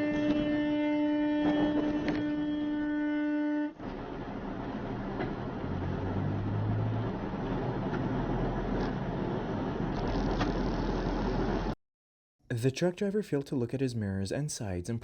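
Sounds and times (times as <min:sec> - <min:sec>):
car horn: 0:00.0 - 0:03.9
road and traffic noise: 0:00.0 - 0:11.8.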